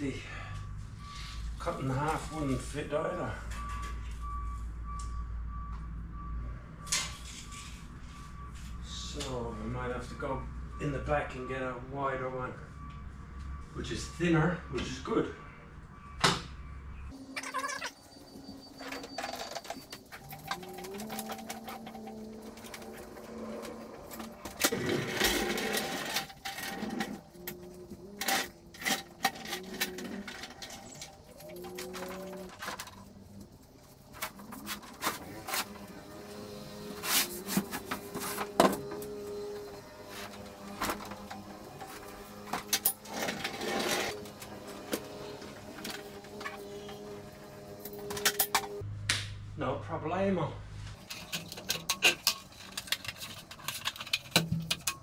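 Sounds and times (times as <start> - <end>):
pallet jack rattling on concrete: 18.9 - 27.5.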